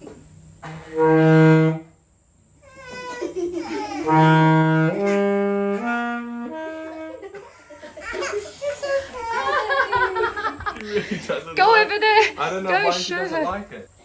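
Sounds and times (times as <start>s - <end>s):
saxophone playing: 0.6s - 2.0s, 3.8s - 7.5s.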